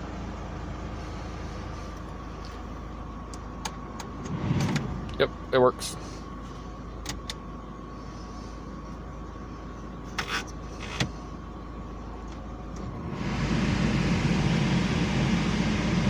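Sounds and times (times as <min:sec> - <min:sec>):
air-conditioning blower fan: 0:00.0 - 0:16.0
car engine idling: 0:00.0 - 0:16.0.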